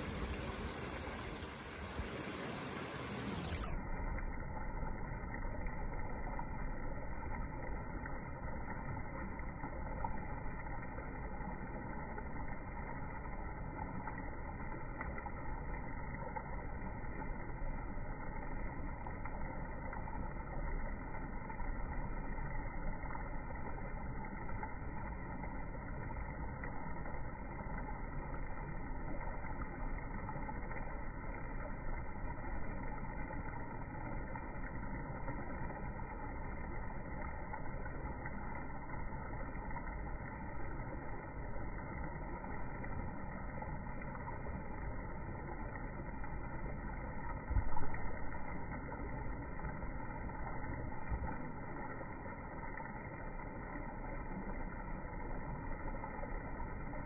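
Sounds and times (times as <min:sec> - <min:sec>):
river water rushing: 0:00.0 - 0:03.7.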